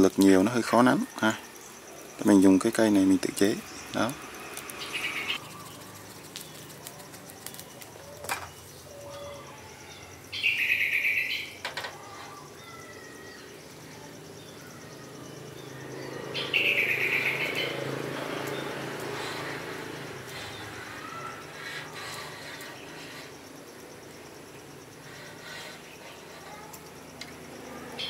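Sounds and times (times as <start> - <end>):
bird calling loudly: 4.8 - 5.8, 16.3 - 17.9.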